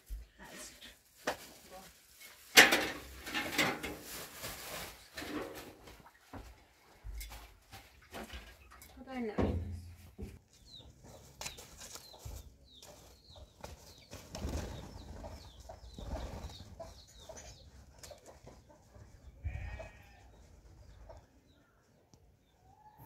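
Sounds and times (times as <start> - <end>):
small birds chirping: 10.0 - 23.0.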